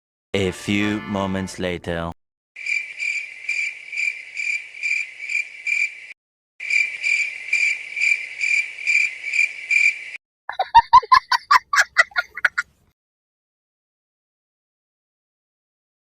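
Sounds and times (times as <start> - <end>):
cricket chirping: 2.6 - 10.2.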